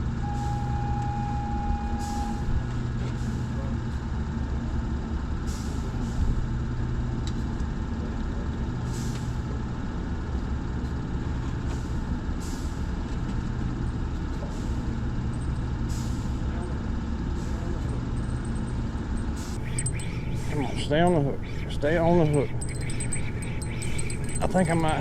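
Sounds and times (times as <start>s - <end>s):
low machinery hum: 19.6s - 25.0s.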